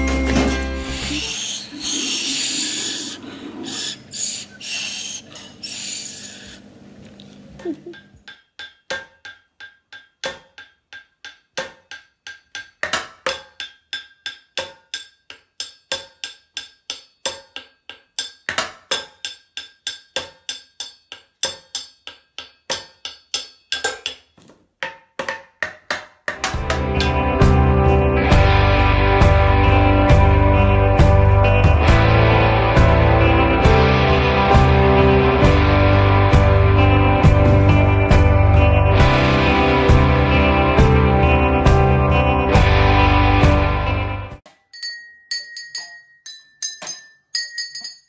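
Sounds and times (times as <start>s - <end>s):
breathy pan pipes: 0.9s - 6.7s
saucepan and tube drumming: 25.2s - 44.4s.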